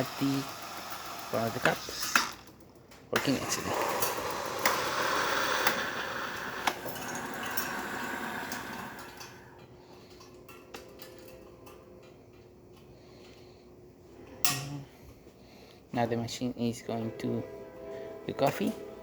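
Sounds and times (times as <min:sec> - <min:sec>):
steam frothing milk hiss: 0:00.0 - 0:02.4, 0:03.2 - 0:09.6
faint machine hum: 0:00.0 - 0:19.0.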